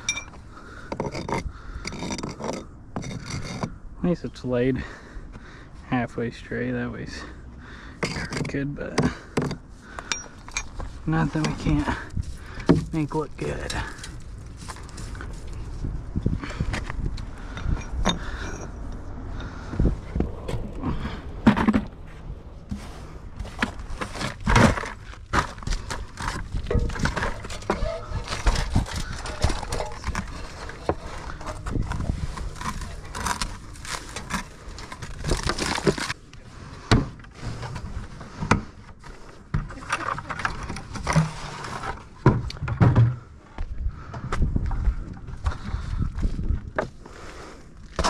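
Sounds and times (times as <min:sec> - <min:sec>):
bricks clinking and scraping: 0:00.0 - 0:03.8, 0:08.0 - 0:15.6, 0:16.4 - 0:18.8, 0:23.4 - 0:43.2.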